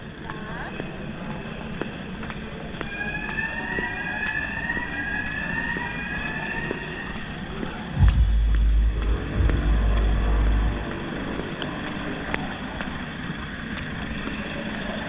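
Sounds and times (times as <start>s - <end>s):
loud low rumble: 8.0s - 12.2s
motorcycle engine accelerating: 8.0s - 12.4s.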